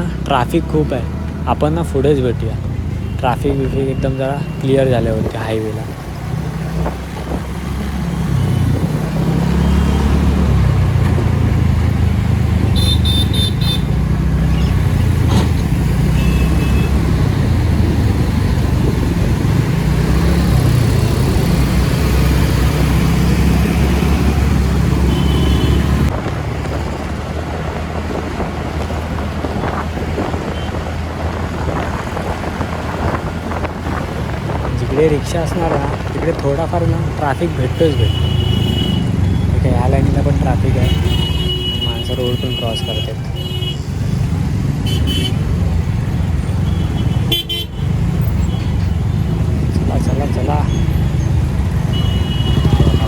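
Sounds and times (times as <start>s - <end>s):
wind rumble on microphone: 6.6s - 7.7s, 17.0s - 21.7s, 26.1s - 36.5s
vehicle horn beeps: 12.8s - 13.9s, 16.1s - 17.0s, 25.0s - 26.0s, 38.0s - 39.5s, 40.8s - 43.8s, 51.9s - 53.0s
scooter engine running: 50.9s - 53.0s.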